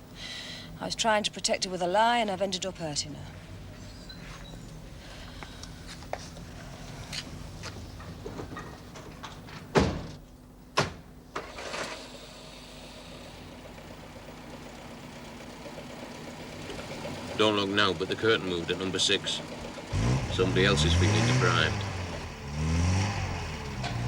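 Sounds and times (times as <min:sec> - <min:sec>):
car engine idling: 0:00.0 - 0:24.0
car doors slamming: 0:08.3 - 0:11.5.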